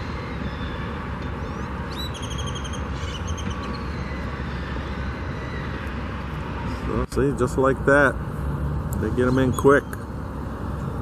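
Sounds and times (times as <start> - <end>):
bird chirping: 0.0 - 5.8, 9.0 - 10.1
traffic rumble: 0.0 - 11.0.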